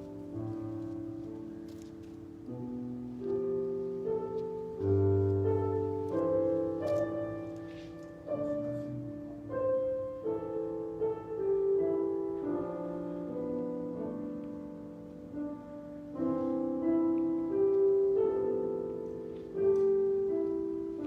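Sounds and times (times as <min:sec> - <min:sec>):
slow keyboard music: 0:00.0 - 0:21.0.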